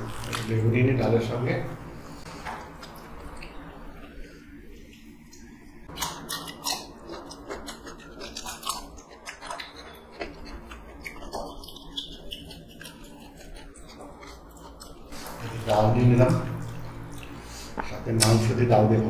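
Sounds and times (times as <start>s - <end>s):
chewing and crunching: 2.6s - 15.2s.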